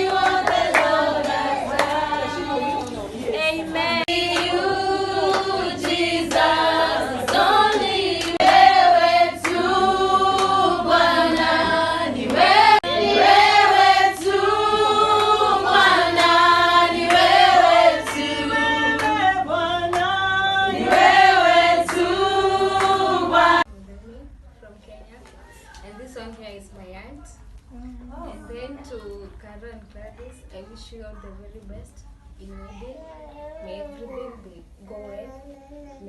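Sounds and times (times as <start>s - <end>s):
hand clapping: 0.0s - 2.0s, 4.3s - 4.6s, 5.2s - 6.6s, 7.3s - 8.8s, 9.4s - 9.7s, 10.3s - 10.6s, 21.9s - 22.1s
women singing in a choir: 0.0s - 23.7s.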